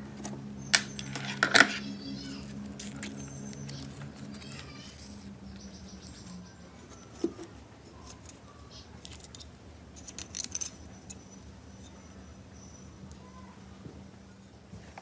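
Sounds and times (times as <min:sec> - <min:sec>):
faint steady hum: 0:00.0 - 0:15.0
small parts clicking and tapping: 0:00.2 - 0:01.9, 0:02.5 - 0:12.0.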